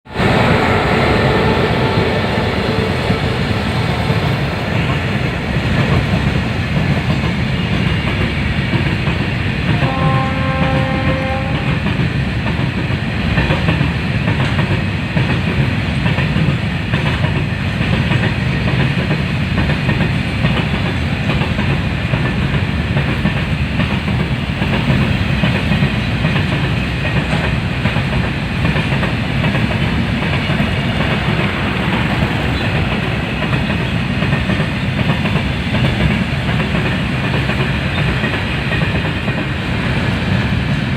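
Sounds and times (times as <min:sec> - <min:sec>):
freight train rumble: 0:00.0 - 0:40.9
train horn: 0:09.6 - 0:11.9.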